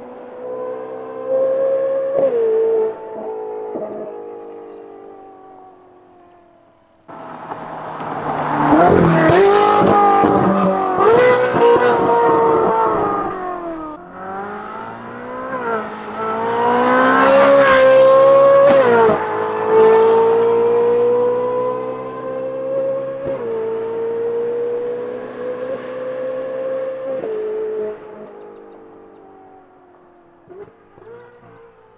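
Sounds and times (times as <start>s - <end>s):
sports car engine revving: 7.1s - 31.9s.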